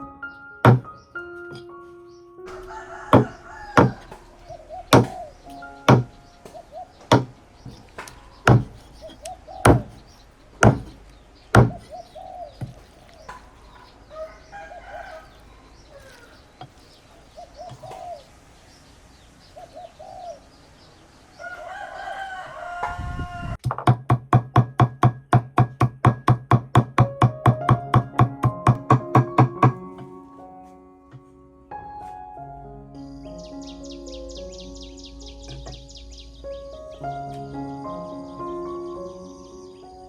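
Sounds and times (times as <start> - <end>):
loud knocks: 0.6 - 0.9, 2.5 - 4.3, 4.9 - 5.3, 5.9 - 6.2, 7.0 - 9.1, 9.7 - 11.0, 11.6 - 11.9
chickens clucking: 2.5 - 18.5.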